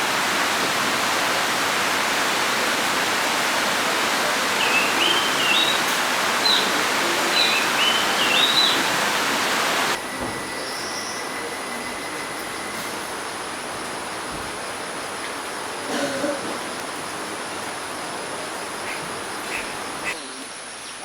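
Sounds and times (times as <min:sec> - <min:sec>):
forest background hiss: 0:00.0 - 0:21.0
songbird whistling: 0:04.6 - 0:09.0.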